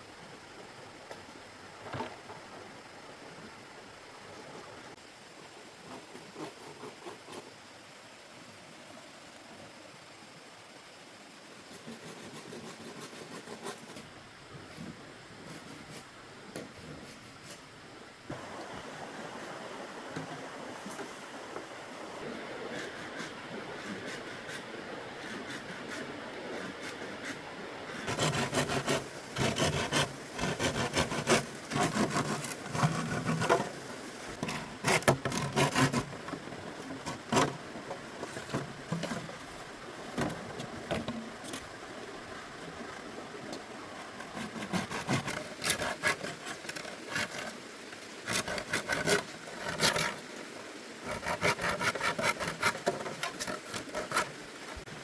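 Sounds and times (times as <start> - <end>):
faint hiss: 0.0 - 55.0
scraping and rasping wood: 11.7 - 14.1, 22.8 - 39.6, 44.0 - 47.6, 48.2 - 50.2, 51.0 - 54.8.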